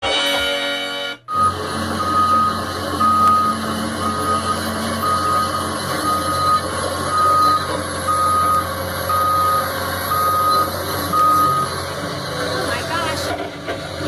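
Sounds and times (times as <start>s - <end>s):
reversing alarm beeping: 0.6s - 11.9s
diesel engine running: 1.2s - 14.0s.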